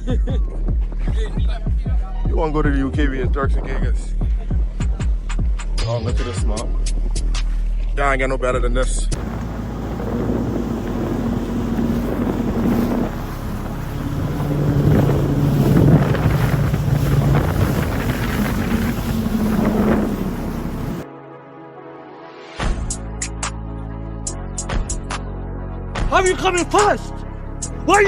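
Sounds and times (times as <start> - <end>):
jet ski engine: 9.2 - 21.0
wind buffeting microphone: 9.2 - 21.0.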